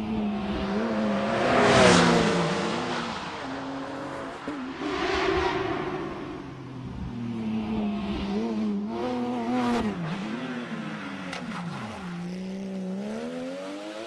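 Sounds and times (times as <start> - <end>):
rally car engine revving: 0.0 - 14.0
car passing by: 0.5 - 8.5.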